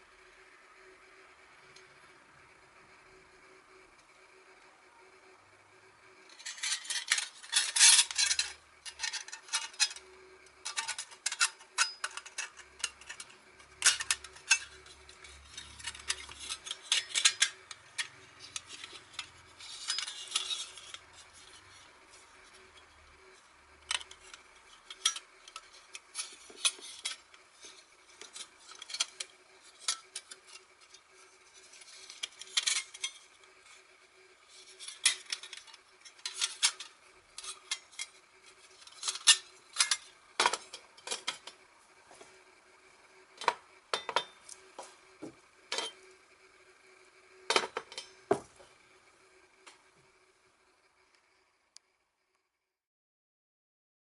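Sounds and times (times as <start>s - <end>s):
steel parts clinking and scraping: 6.3s - 33.8s, 34.4s - 41.6s, 43.4s - 44.7s, 45.7s - 46.1s, 47.5s - 48.6s.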